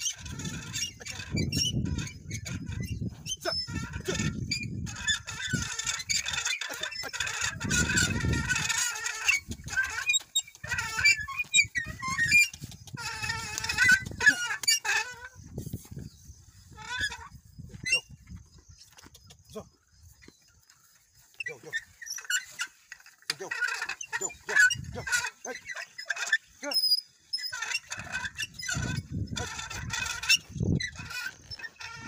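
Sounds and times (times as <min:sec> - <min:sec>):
birds chirping and calling: 0:00.0 - 0:32.0.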